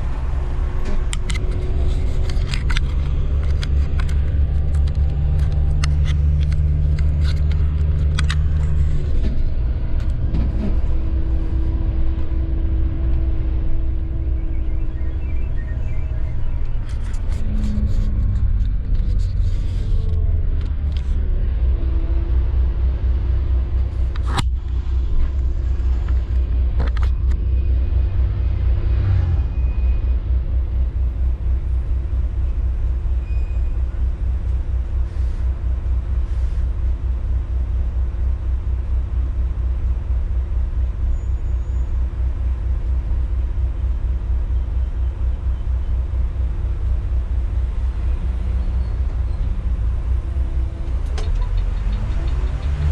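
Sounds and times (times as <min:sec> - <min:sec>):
bus engine low rumble: 0:00.0 - 0:52.9.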